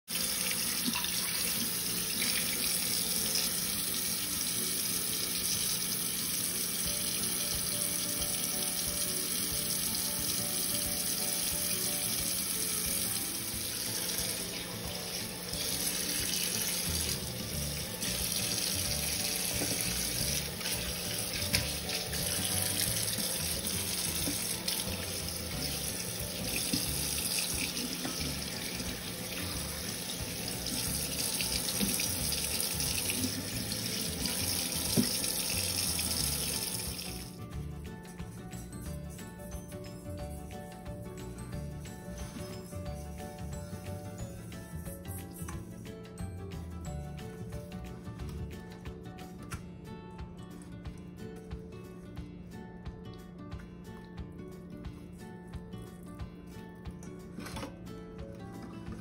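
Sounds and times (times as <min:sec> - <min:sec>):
tap running into metal sink: 0:18.1 - 0:25.2, 0:25.8 - 0:37.1.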